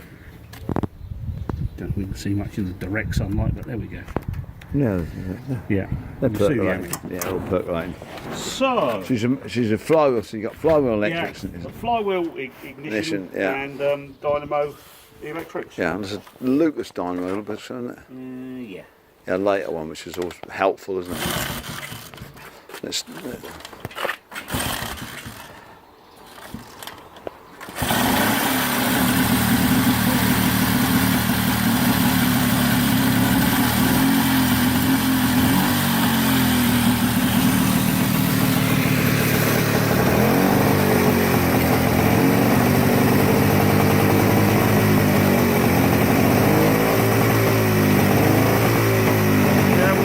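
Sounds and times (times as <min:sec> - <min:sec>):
motorcycle engine running: 0:27.8 - 0:50.0.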